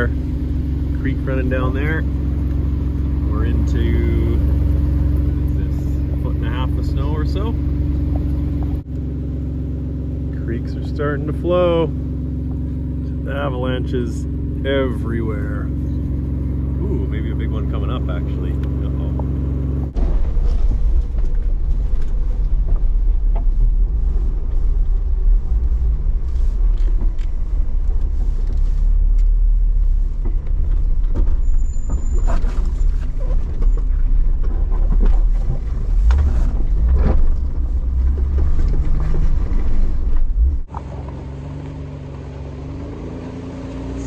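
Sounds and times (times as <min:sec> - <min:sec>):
heavy rumble with knocks: 0:00.0 - 0:09.2, 0:10.3 - 0:42.2
car engine running: 0:00.0 - 0:44.0.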